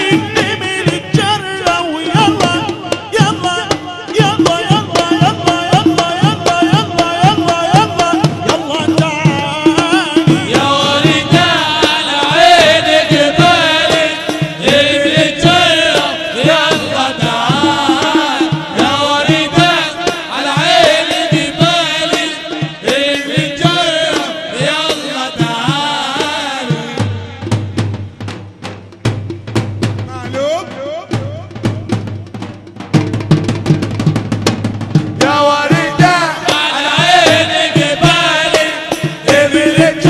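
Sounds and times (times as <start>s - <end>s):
person chanting ornamented singing: 0.0s - 27.5s
hand-drum percussion: 0.0s - 40.0s.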